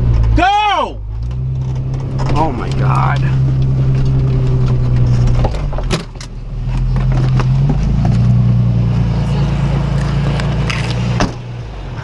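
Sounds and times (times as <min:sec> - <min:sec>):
car engine running under load: 0:00.0 - 0:12.0
car bumping over rough ground: 0:01.0 - 0:08.7.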